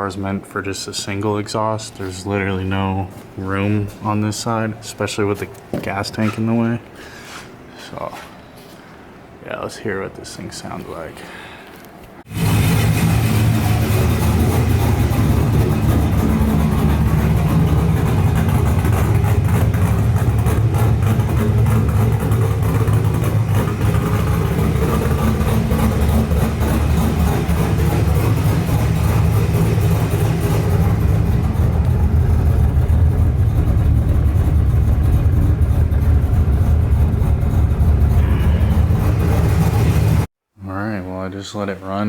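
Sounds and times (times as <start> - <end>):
car engine running loudly: 12.3 - 40.3.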